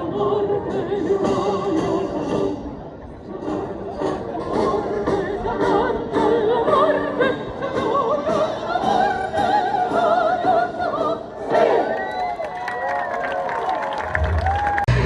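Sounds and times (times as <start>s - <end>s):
operatic singing voice: 0.0s - 12.0s.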